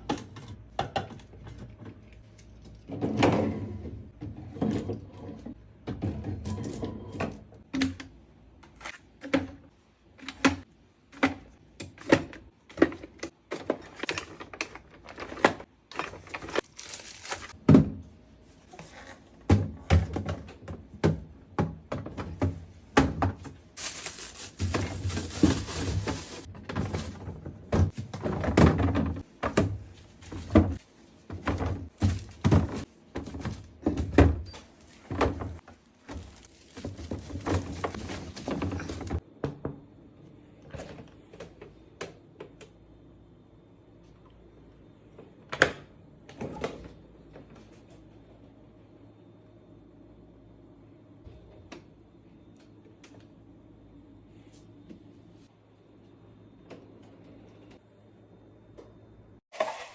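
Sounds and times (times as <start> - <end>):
crinkly rustling: 16.0 - 17.6, 23.8 - 27.3, 35.7 - 39.2
containers knocking and clinking: 59.5 - 59.9.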